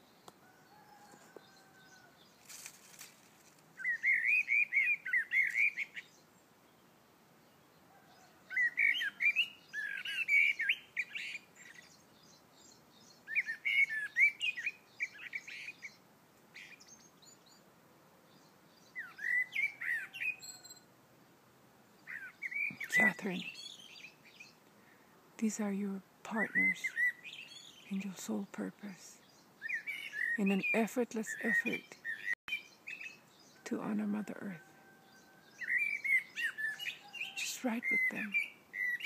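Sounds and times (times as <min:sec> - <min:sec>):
birds chirping: 0:03.8 - 0:39.0.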